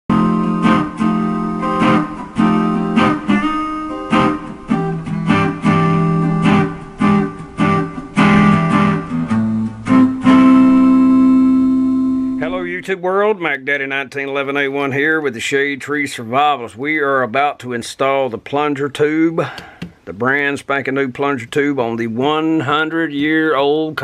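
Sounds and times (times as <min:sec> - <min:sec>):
guitar strumming chords: 0:00.1 - 0:13.0.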